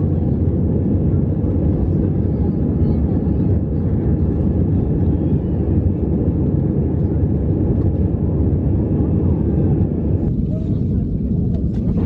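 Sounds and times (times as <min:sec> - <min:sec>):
jet engine roar in cabin: 0:00.0 - 0:12.0.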